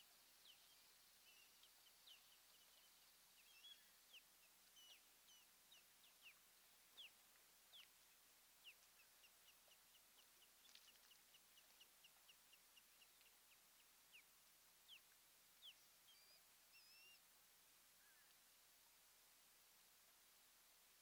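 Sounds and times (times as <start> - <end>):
faint high bird chirps: 0.4 - 6.4, 14.9 - 17.2.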